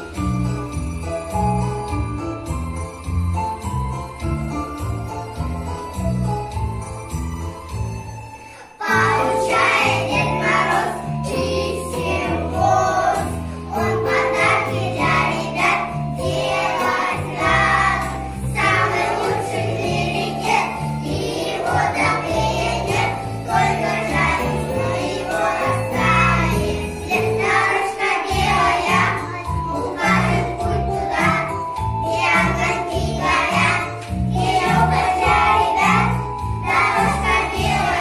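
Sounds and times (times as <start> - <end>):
choir singing: 8.8 - 31.5, 32.2 - 38.0.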